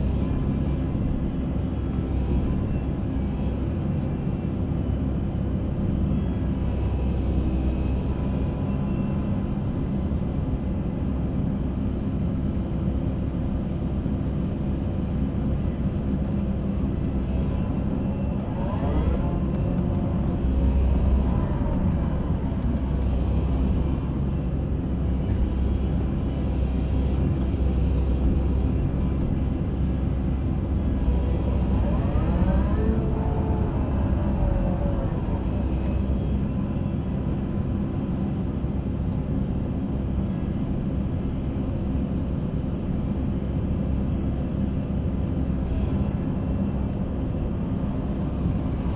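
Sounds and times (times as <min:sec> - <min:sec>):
concrete mixer drone: 0:15.2 - 0:39.0.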